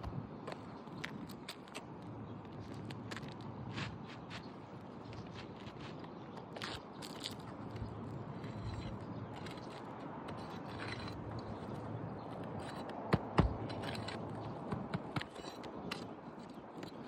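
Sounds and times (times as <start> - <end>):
sharp knocks: 13.1 - 16.0.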